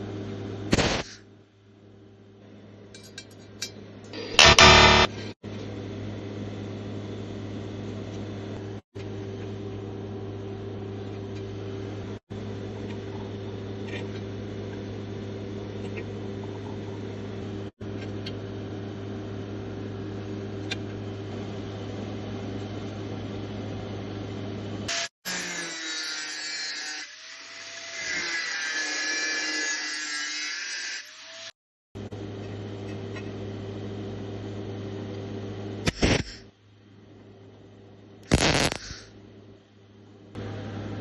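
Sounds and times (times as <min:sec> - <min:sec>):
low mains hum: 0:00.0 - 0:24.9, 0:32.0 - 0:41.0
arc welding buzzing hiss: 0:00.7 - 0:01.2, 0:04.1 - 0:05.2, 0:38.3 - 0:39.1.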